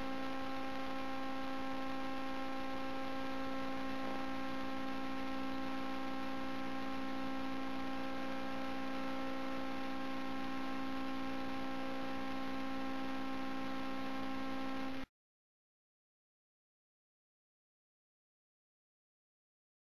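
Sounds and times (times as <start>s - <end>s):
steady hum of fixed tones: 0.0s - 15.1s.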